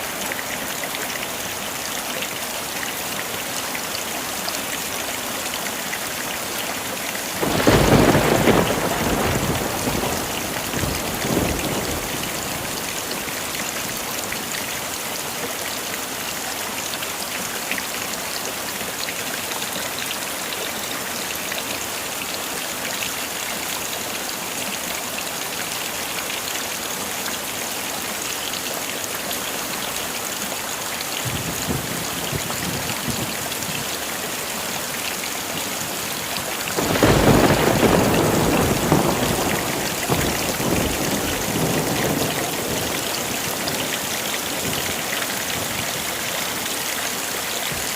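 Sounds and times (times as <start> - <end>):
heavy rain falling: 0.0 - 47.9
thunder rolling: 7.4 - 12.8, 36.8 - 43.4.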